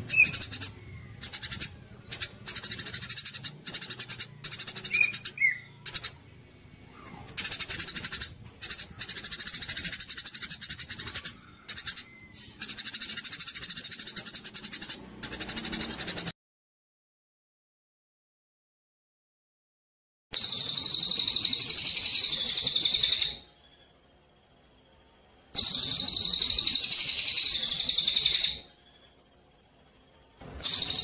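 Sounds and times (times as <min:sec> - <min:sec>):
songbird trilling: 0:00.0 - 0:06.2, 0:06.9 - 0:16.3, 0:20.4 - 0:23.5, 0:25.6 - 0:29.2, 0:29.8 - 0:31.0.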